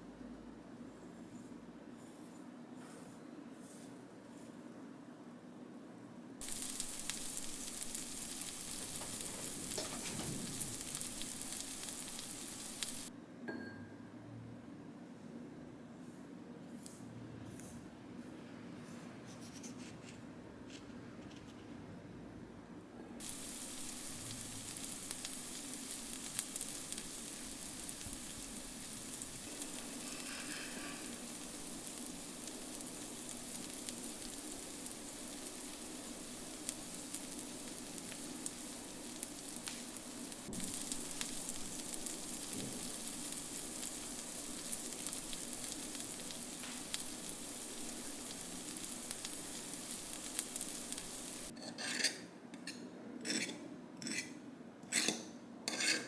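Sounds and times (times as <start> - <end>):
hissing noise with crackling: 6.4 - 13.1, 23.2 - 51.6.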